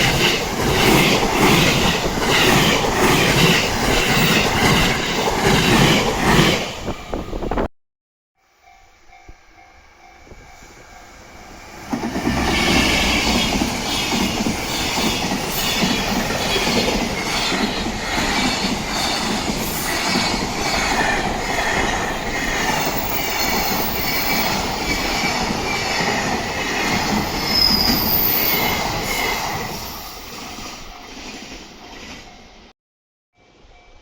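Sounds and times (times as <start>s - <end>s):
train wheels squealing: 8.5s - 32.7s
train wheels clattering: 11.8s - 29.6s.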